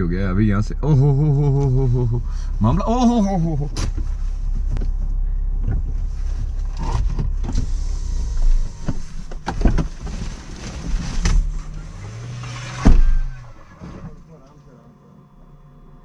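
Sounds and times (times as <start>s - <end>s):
car engine running: 0.0s - 16.0s
sharp knocks and thumps: 12.5s - 14.1s.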